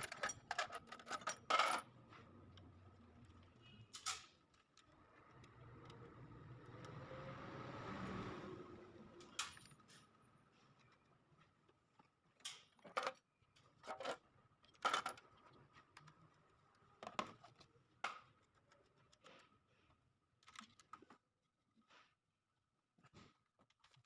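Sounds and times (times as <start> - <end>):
light clicks and clatters: 10.7 - 21.3.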